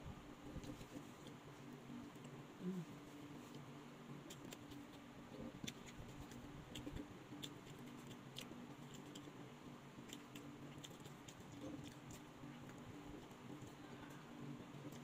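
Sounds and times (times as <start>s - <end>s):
low steady hum: 0.0s - 15.0s
person chewing: 4.3s - 9.3s, 10.1s - 14.2s.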